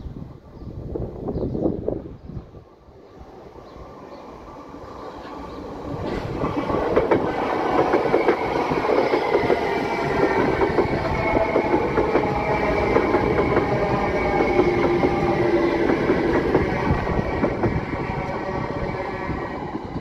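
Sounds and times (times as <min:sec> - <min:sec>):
train running rumble: 0:05.0 - 0:20.0.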